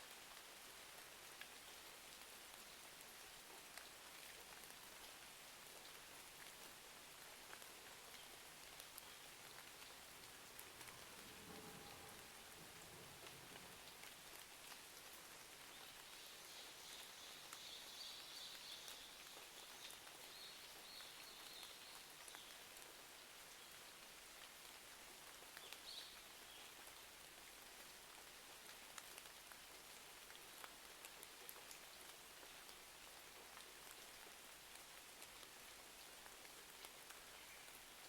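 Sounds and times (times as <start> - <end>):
rain: 0.0 - 38.0
wood fire crackling: 8.7 - 15.2
faint high-pitched sound: 10.8 - 14.0.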